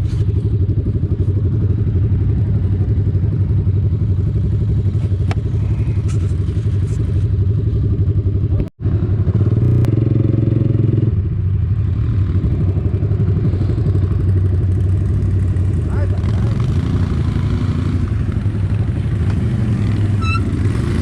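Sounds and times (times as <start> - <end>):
quad bike engine rumbling: 0.0 - 21.0.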